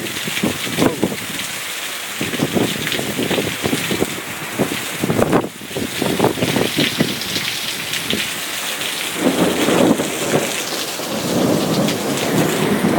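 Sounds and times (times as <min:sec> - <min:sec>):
heavy rain pouring: 0:00.0 - 0:12.9
wind buffeting microphone: 0:00.0 - 0:12.9
low thunder rumble: 0:09.1 - 0:12.9.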